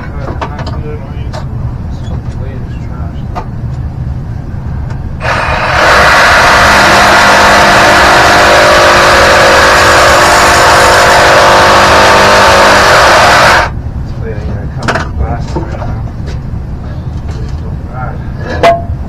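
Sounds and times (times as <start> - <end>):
power saw cutting pipe: 5.2 - 13.7.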